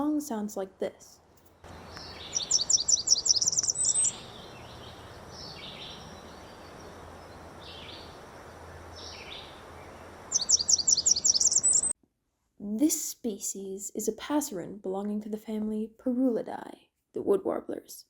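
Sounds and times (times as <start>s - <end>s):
warbler singing high thin notes: 1.9s - 8.2s, 8.9s - 11.9s.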